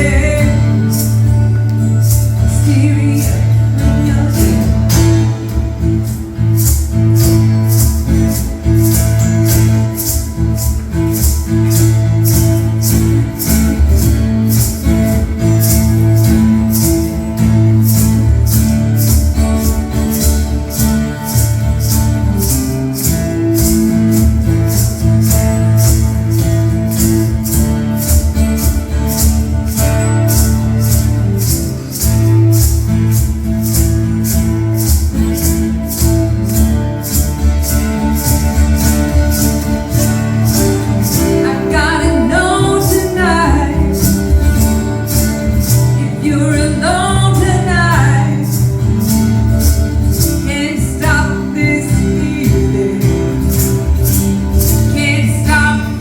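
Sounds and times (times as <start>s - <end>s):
person singing: 0.0s - 6.1s, 41.0s - 45.2s, 50.4s - 53.9s
live band music: 0.0s - 56.0s.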